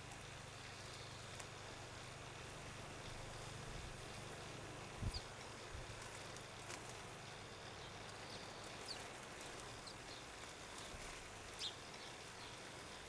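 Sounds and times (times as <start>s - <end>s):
steady background hiss: 0.0s - 13.0s
faint bird chirps: 7.2s - 12.7s.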